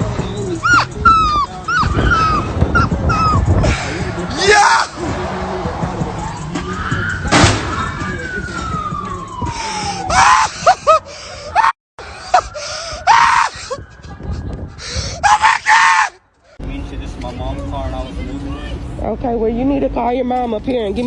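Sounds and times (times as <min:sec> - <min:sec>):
people shouting or screaming: 0:00.6 - 0:05.1, 0:09.7 - 0:10.9, 0:11.5 - 0:13.8, 0:14.8 - 0:16.2
siren wailing: 0:05.7 - 0:10.8
loud bang: 0:07.2 - 0:07.9.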